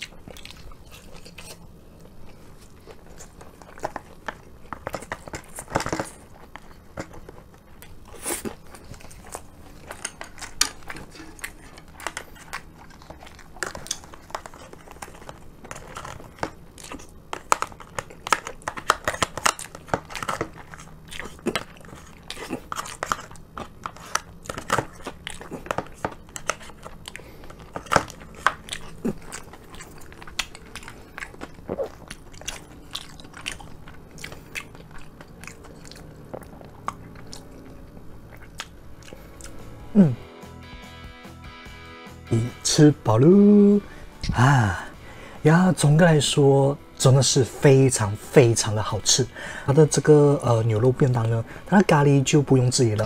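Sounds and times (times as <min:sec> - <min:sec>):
chewing and mouth sounds: 0:00.0 - 0:40.2.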